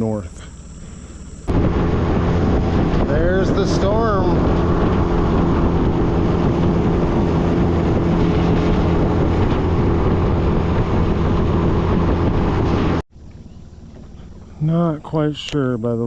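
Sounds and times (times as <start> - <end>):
boat motor running: 0.0 - 16.0
wind buffeting microphone: 0.6 - 15.9.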